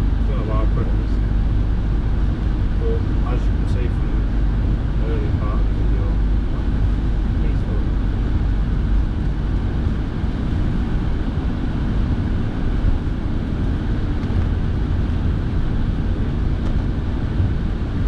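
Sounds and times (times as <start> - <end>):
car heater fan blowing: 0.0 - 18.0
tyre and engine rumble: 0.0 - 18.0.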